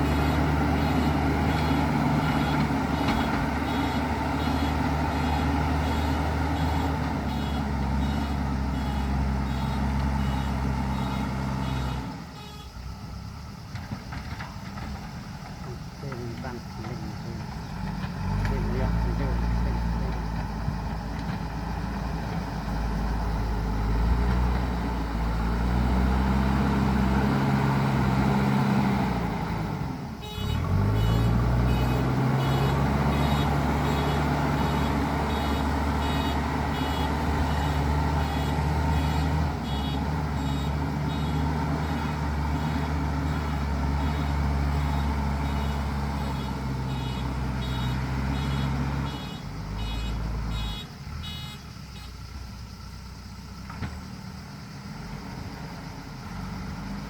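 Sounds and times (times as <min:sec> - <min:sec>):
backhoe diesel engine revving: 0:00.0 - 0:12.4, 0:13.0 - 0:57.0
reversing alarm beeping: 0:05.7 - 0:12.0, 0:30.5 - 0:51.6.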